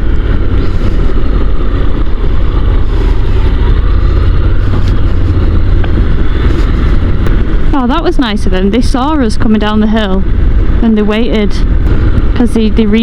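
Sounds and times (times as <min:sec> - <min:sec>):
motorcycle engine running: 0:00.0 - 0:13.0
wind rush on microphone: 0:00.0 - 0:13.0.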